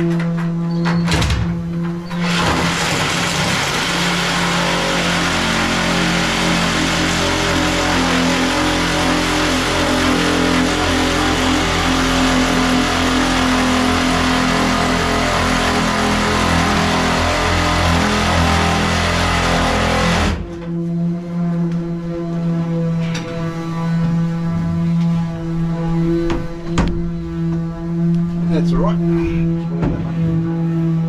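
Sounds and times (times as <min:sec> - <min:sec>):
power saw cutting: 0:02.0 - 0:20.5.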